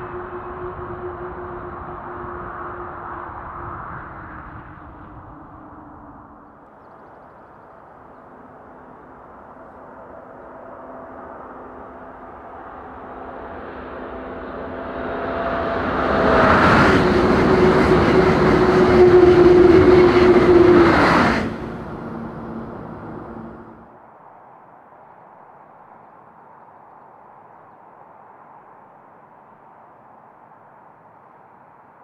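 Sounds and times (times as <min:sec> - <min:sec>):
train whine: 0:00.0 - 0:06.7, 0:07.5 - 0:23.9
high-speed train passing: 0:00.0 - 0:06.8, 0:07.4 - 0:23.9.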